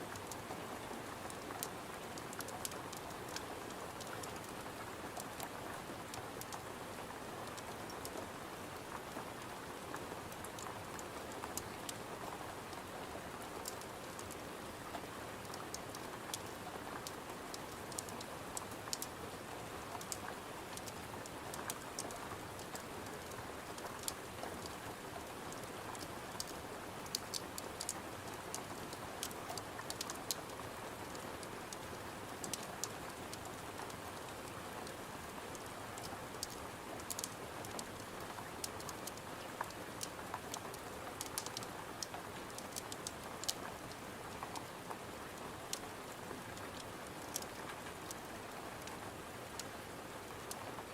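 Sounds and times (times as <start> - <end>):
steady rain: 0.0 - 50.9
wood fire crackling: 35.6 - 43.8.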